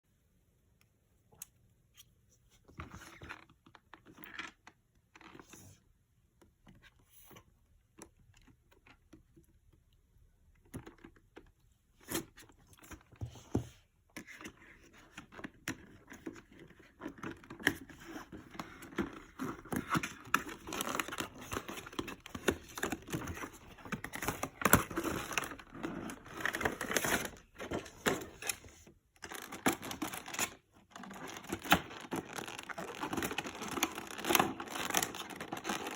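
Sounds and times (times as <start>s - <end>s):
plastic and paper crinkling: 15.1s - 35.9s.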